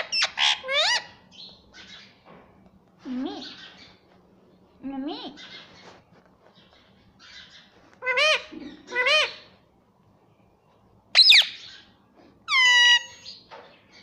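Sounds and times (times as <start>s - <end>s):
parrot squawk: 0.0s - 1.2s, 8.0s - 9.5s, 11.2s - 11.8s, 12.5s - 13.4s
parrot calling: 0.0s - 2.1s, 7.2s - 9.6s, 11.2s - 13.4s.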